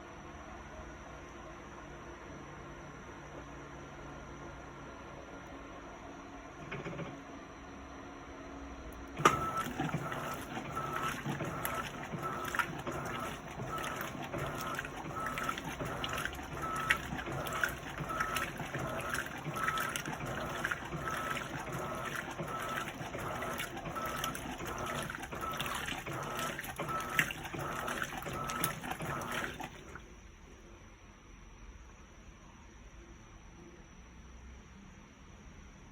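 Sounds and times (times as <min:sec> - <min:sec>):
washing machine agitating: 0:06.5 - 0:07.2, 0:09.0 - 0:30.5
washing machine click: 0:09.0 - 0:30.0.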